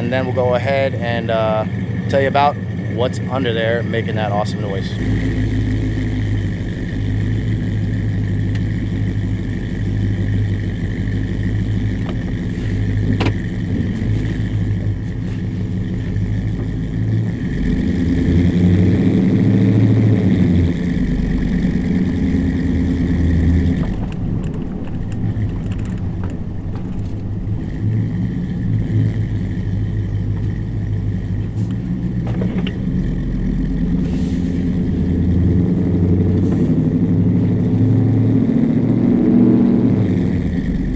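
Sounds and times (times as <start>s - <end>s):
truck engine accelerating through gears: 0.0s - 40.9s.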